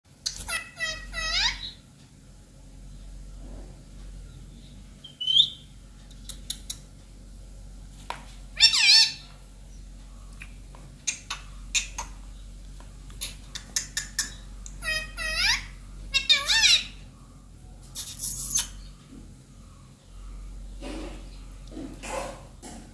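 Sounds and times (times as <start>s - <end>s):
parrot squawking: 0.2s - 1.8s, 5.0s - 5.6s, 8.6s - 9.3s, 11.1s - 12.2s, 13.2s - 17.0s, 18.0s - 18.9s.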